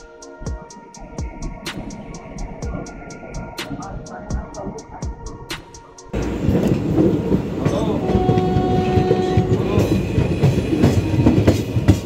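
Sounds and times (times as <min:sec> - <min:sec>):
steady tone: 0:00.0 - 0:07.8
train rumble: 0:00.0 - 0:12.0.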